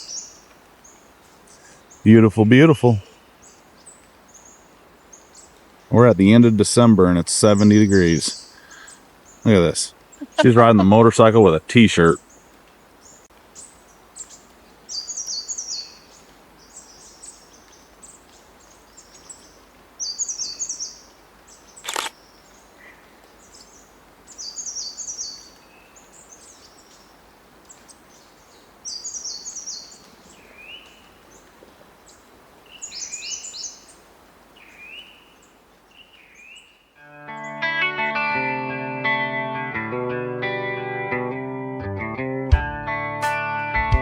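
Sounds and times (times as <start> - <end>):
songbirds chirping: 0.0 - 37.7
sharp click: 21.8 - 22.2.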